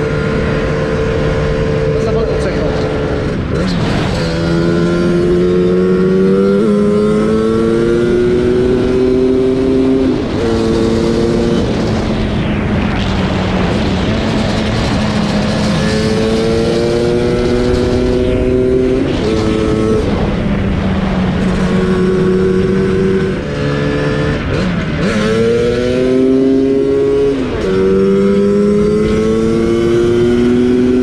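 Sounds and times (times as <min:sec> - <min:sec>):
wind rushing over camera: 0:00.0 - 0:31.0.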